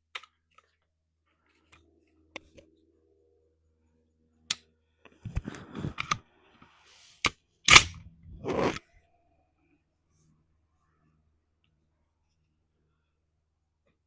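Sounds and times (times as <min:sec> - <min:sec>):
rifle handling clicks: 0:07.7 - 0:08.0
rifle shot: 0:07.7 - 0:08.1.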